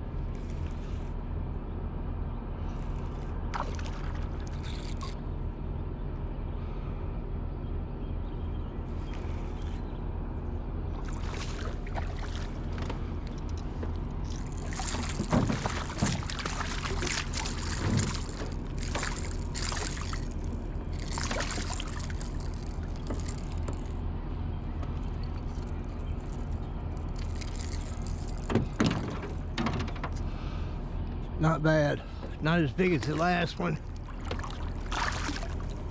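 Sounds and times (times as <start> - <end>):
boat motor running: 0.0 - 6.8, 8.3 - 35.9
fish thrashing and splashing: 3.1 - 5.2, 11.0 - 24.0, 24.9 - 29.4, 32.8 - 35.9.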